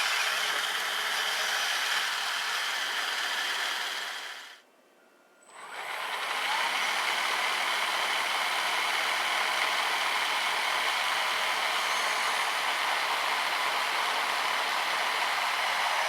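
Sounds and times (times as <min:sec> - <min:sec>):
electric motor whirring: 0:00.0 - 0:04.6, 0:05.6 - 0:16.0.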